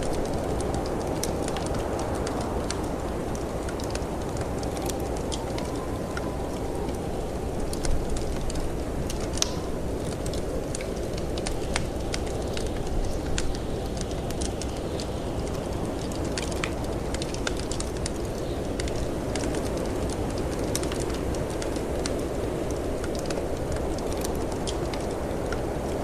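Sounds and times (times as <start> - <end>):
snowstorm wind rumbling: 0.0 - 26.0
wood fire crackling and popping: 0.0 - 26.0.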